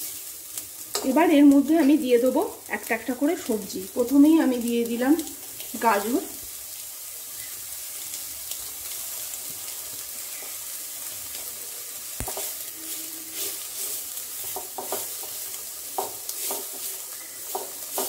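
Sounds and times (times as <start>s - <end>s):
food sizzling in oil: 0.0s - 18.0s
spatula scraping pan: 12.2s - 18.0s.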